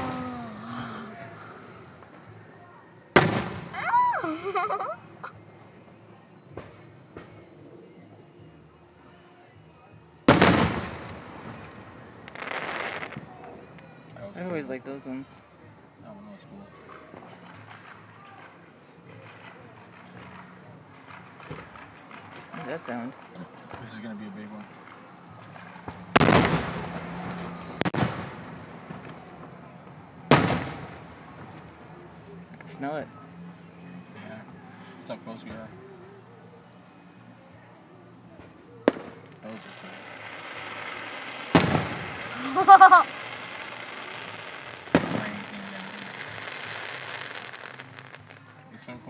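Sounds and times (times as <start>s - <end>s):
crickets chirring: 0.0s - 49.0s
firework shell bursting: 3.2s - 4.1s, 10.3s - 13.3s, 25.7s - 29.3s, 30.3s - 31.7s, 38.8s - 48.4s
fireworks crackling: 3.2s - 7.6s, 10.0s - 33.5s, 38.5s - 49.0s
faint distant pops: 38.8s - 42.4s, 43.2s - 48.4s.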